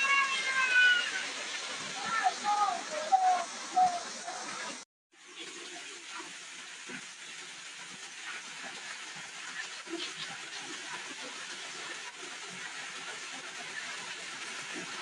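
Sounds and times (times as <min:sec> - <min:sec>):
heavy rain falling: 0:00.0 - 0:04.8.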